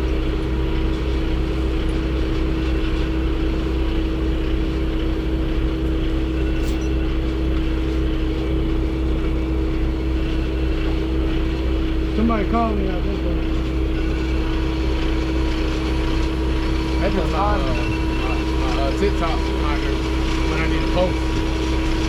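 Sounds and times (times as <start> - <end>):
machine humming and rumbling: 0.0 - 22.0.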